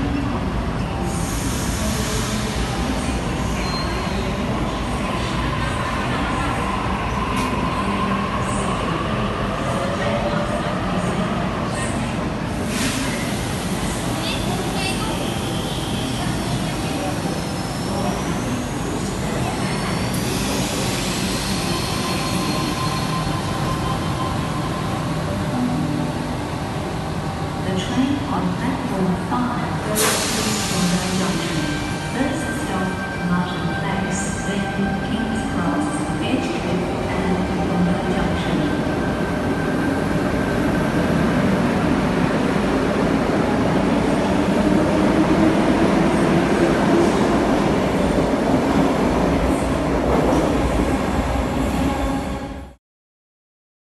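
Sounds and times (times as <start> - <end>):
electric train rumbling: 0.0 - 52.8.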